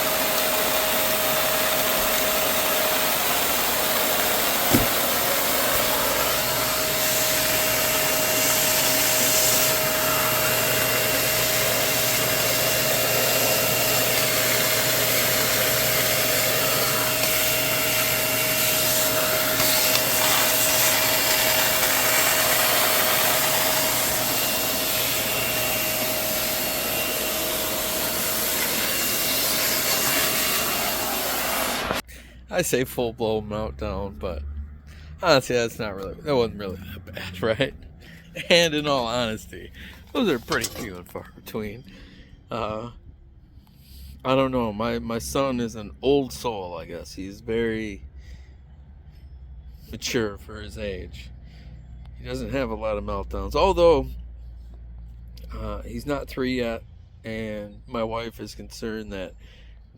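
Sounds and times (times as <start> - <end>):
vacuum cleaner running: 0.0 - 32.1.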